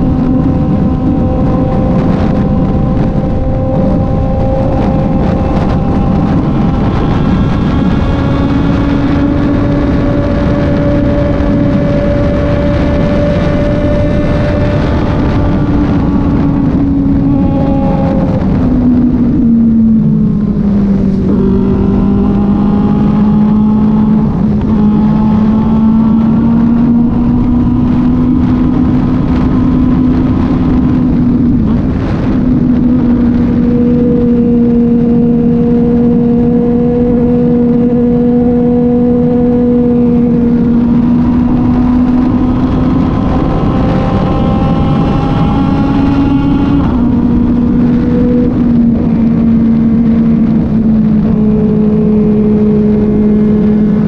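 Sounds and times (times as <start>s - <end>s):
constant rushing noise: 0.0s - 54.0s
motorcycle engine cruising: 0.0s - 54.0s.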